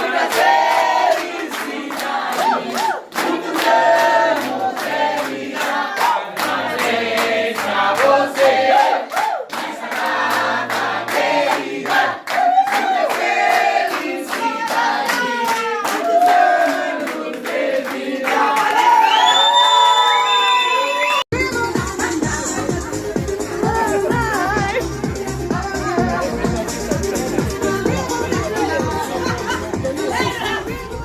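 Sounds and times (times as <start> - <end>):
group of people singing: 0.0 - 19.2, 21.4 - 31.0
hands clapping in rhythm: 0.0 - 19.5.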